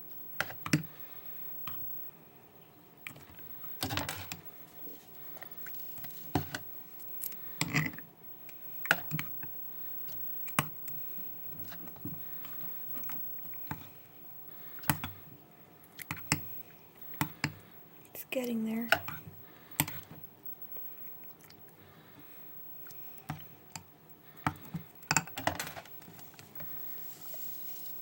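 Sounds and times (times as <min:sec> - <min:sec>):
utensil stirring slime: 0:14.6 - 0:28.0.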